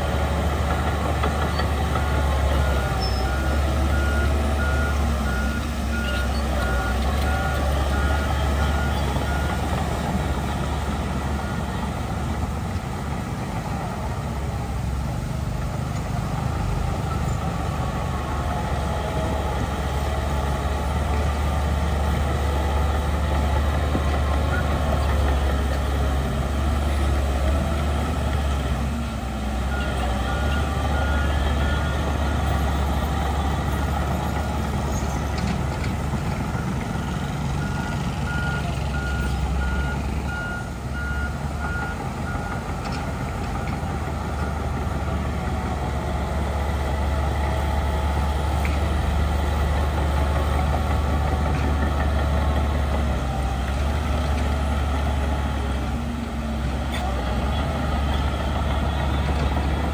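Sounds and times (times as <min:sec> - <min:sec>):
heavy diesel machinery rumbling: 0:00.0 - 0:59.9
reversing alarm beeping: 0:36.5 - 0:42.7.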